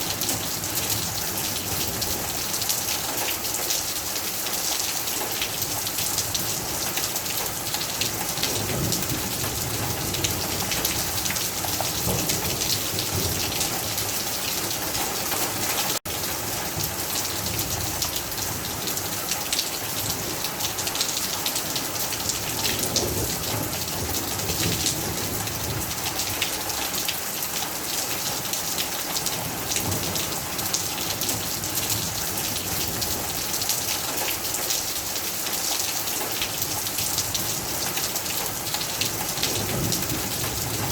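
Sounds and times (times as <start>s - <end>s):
heavy rain on hard surfaces: 0.0s - 40.9s.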